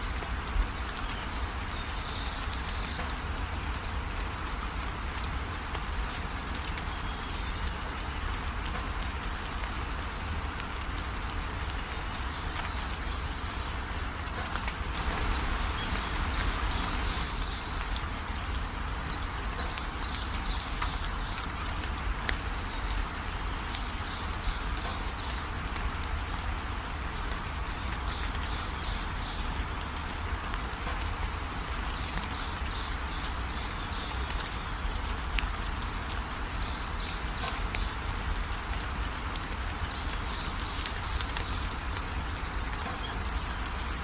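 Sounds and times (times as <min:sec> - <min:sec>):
steady rain falling: 0:00.0 - 0:44.0
birds twittering: 0:11.7 - 0:21.4.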